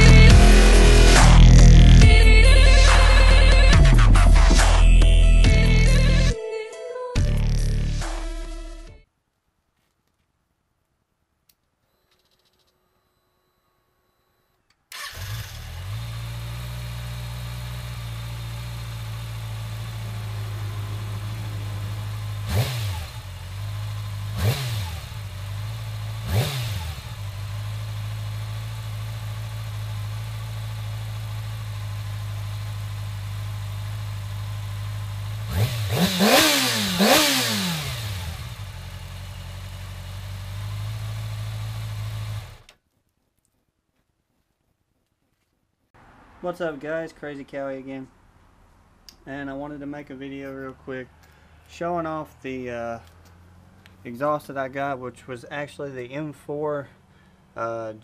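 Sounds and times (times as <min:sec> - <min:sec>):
motorcycle engine idling and revving: 0:00.0 - 0:06.3, 0:15.0 - 0:42.8, 0:49.4 - 0:58.0.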